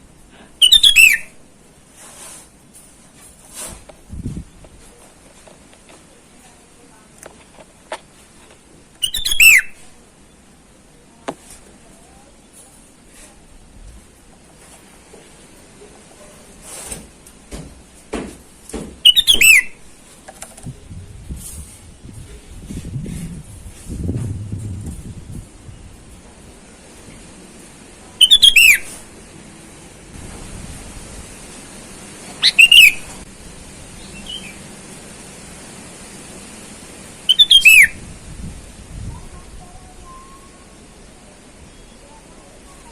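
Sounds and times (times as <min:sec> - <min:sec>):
faint bird call: 0:00.4 - 0:01.3
bird whistling bubbly notes: 0:00.6 - 0:01.3, 0:09.0 - 0:09.7, 0:28.2 - 0:28.8, 0:32.4 - 0:33.0, 0:37.3 - 0:38.0
soft knocks and rustles: 0:16.2 - 0:19.0.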